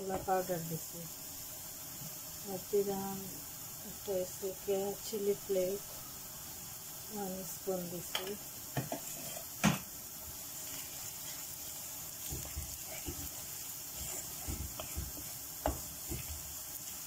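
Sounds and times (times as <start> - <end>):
onions sizzling in oil: 0.0 - 17.0
wooden spoon scraping a pan: 8.7 - 9.8, 10.5 - 17.0.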